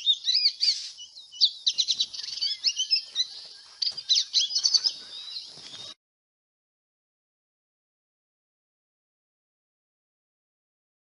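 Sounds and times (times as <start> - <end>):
small birds chirping: 0.0 - 6.0.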